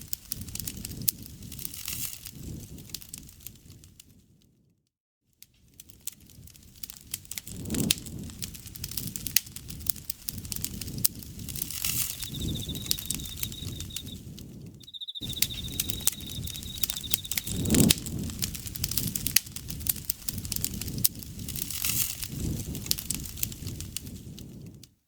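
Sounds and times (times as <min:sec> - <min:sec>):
campfire crackling and popping: 0:00.0 - 0:03.9, 0:05.7 - 0:14.6, 0:15.2 - 0:24.9
insect trilling: 0:11.7 - 0:14.2, 0:14.8 - 0:17.9.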